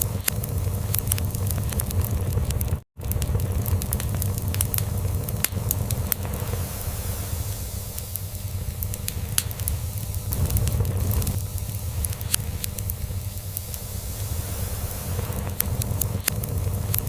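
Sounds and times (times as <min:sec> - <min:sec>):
log fire crackling: 0:00.0 - 0:17.0.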